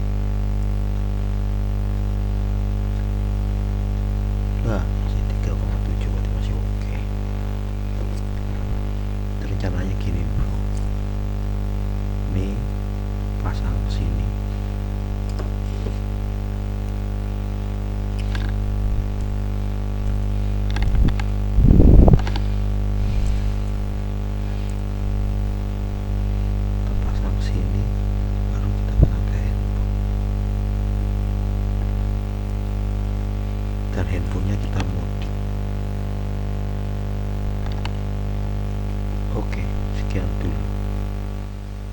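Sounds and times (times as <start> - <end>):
electrical mains hum: 0.0 - 41.9
battery and clip clicking: 20.6 - 21.4.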